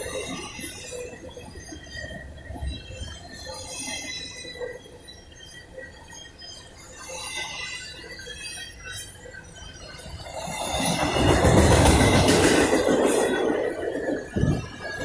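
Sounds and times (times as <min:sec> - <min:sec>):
freight cars rumbling on rails: 0:09.6 - 0:15.0.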